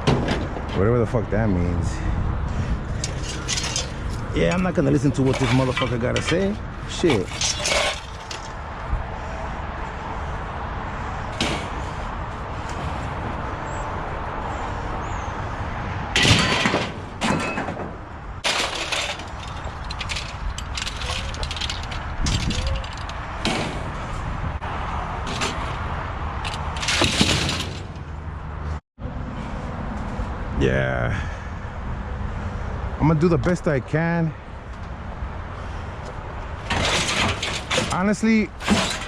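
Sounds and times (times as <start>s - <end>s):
metal knocks and clatter: 0.0s - 0.9s, 3.0s - 8.6s, 11.4s - 12.0s, 16.1s - 24.2s, 25.2s - 28.2s, 36.6s - 39.0s
steady rumbling: 16.1s - 28.8s.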